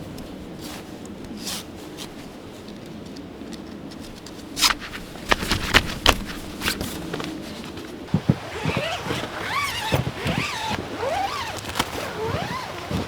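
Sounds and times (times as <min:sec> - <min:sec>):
sharp clicks and rustles: 0:02.7 - 0:13.0.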